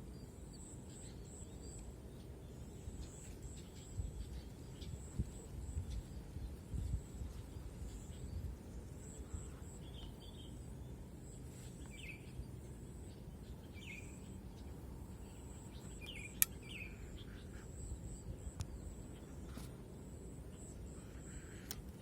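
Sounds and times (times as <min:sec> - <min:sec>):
steady low background noise: 0:00.0 - 0:22.0
sharp click: 0:16.0 - 0:16.7.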